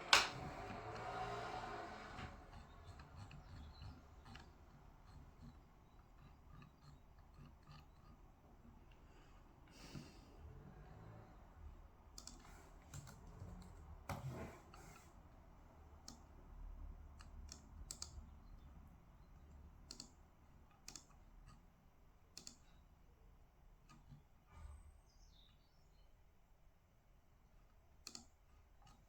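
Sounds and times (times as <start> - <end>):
typing on computer keyboard: 12.2 - 13.3, 17.2 - 18.3, 19.8 - 20.2, 20.8 - 21.6, 28.0 - 29.0.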